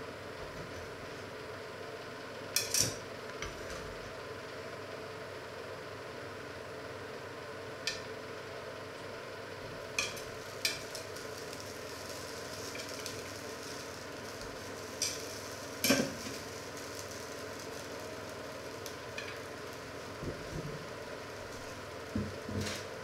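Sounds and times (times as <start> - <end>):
cutlets sizzling in a pan: 9.8 - 23.0
metal tongs clicking on pan: 10.0 - 11.1, 15.0 - 16.1.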